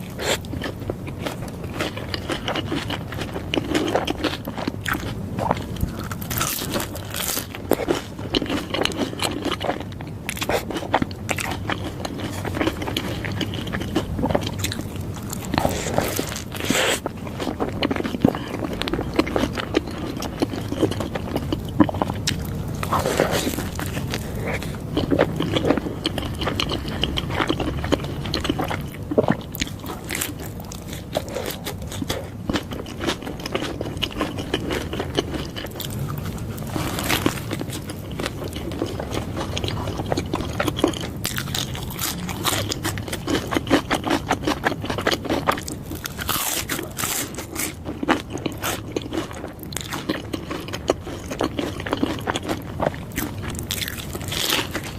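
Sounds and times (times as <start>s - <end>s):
crunchy bites: 0.0s - 54.9s
wet chewing: 0.0s - 54.9s.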